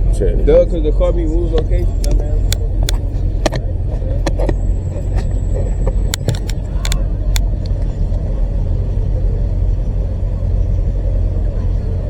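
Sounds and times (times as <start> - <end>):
car engines rumbling: 0.0 - 12.0
short sharp clicks: 1.8 - 7.5.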